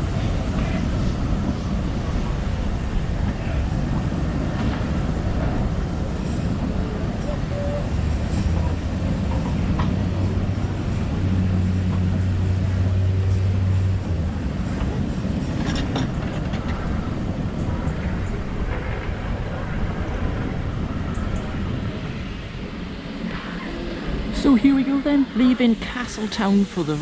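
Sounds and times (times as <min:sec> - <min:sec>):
train low hum: 0:00.0 - 0:27.0
train rumbling: 0:00.0 - 0:27.0.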